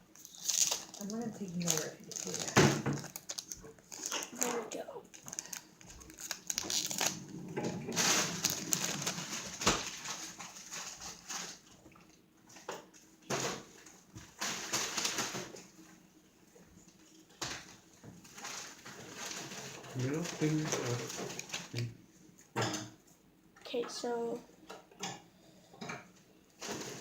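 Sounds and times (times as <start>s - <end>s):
foil wrapper crinkling: 0.1s - 11.7s, 13.6s - 15.8s, 17.6s - 21.9s, 26.6s - 27.0s.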